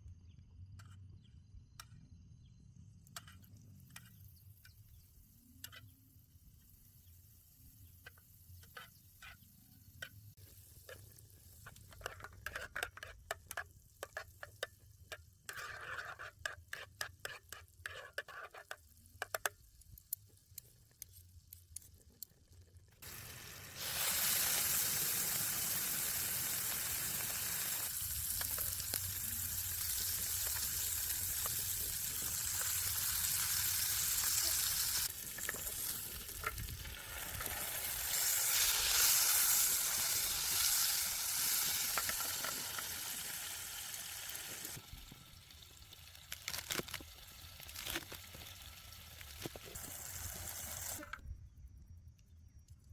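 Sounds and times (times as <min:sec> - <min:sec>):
food sizzling in a pan: 0:23.0 - 0:51.1.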